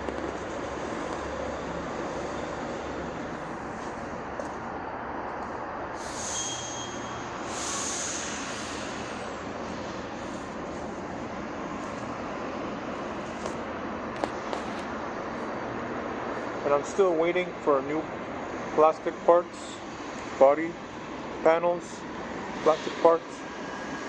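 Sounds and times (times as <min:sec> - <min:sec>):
high hiss with thin whistle: 0:06.0 - 0:09.2.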